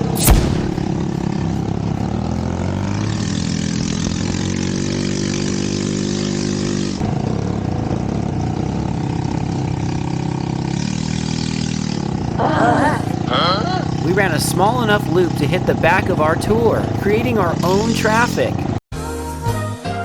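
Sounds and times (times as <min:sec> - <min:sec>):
buggy engine running: 0:00.0 - 0:18.8.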